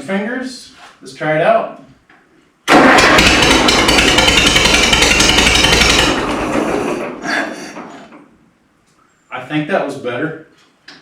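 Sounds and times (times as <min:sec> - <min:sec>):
tractor engine running: 0:02.7 - 0:08.2.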